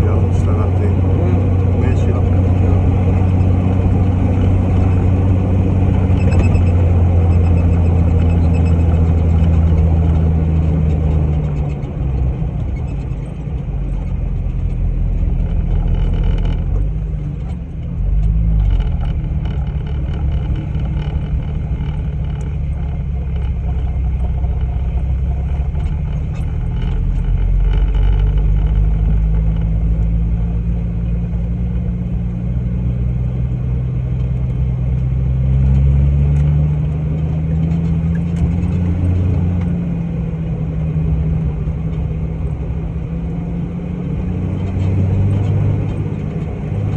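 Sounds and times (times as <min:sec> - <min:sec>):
vehicle engine revving under load: 0:00.0 - 0:12.5, 0:33.1 - 0:46.9.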